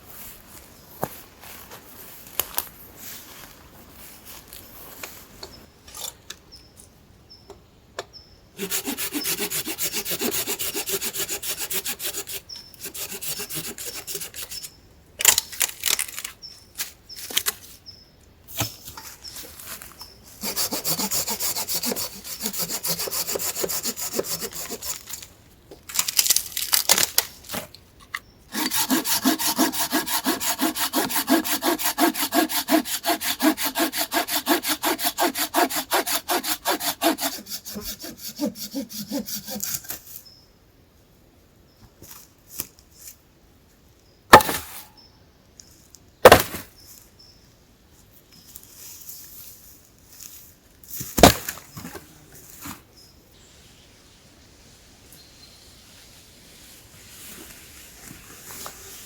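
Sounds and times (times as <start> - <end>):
hand saw cutting wood: 8.6 - 14.7, 20.4 - 25.2, 28.5 - 40.0.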